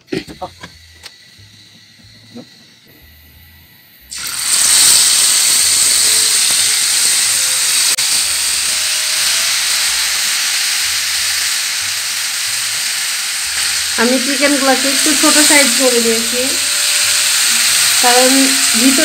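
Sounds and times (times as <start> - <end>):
chicken sizzling in hot oil: 4.1 - 19.0.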